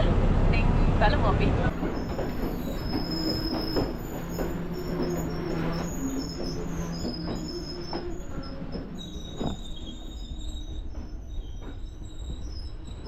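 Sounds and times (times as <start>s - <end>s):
train rumble: 0.0s - 13.0s
track knocks: 1.7s - 9.8s
wheel squeal: 1.8s - 13.0s.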